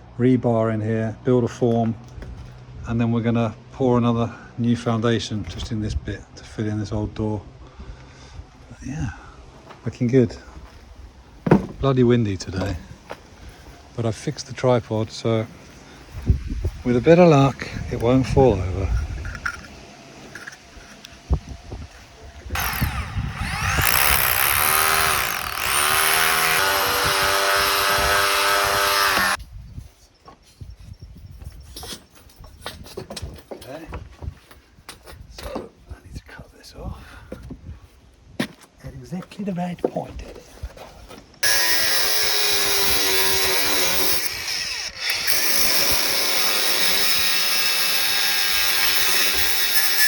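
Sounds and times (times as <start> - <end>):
electric power tool cutting: 22.5 - 29.4, 41.4 - 50.0.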